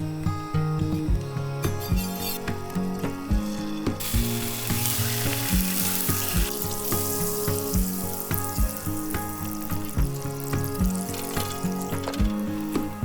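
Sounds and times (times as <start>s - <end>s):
background music with beat: 0.0s - 13.0s
food sizzling in a pan: 4.0s - 13.0s.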